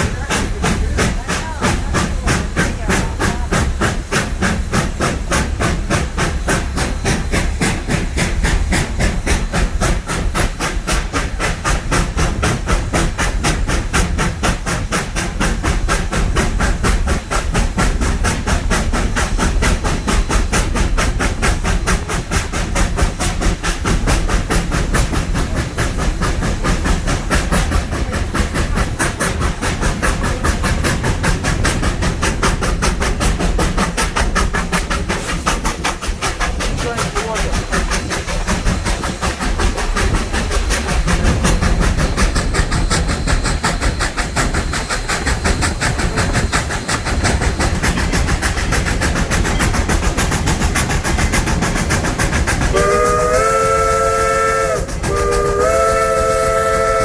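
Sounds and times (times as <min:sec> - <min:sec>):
steam hiss: 0:00.0 - 0:57.0
steam locomotive exhaust chuffing: 0:00.0 - 0:57.0.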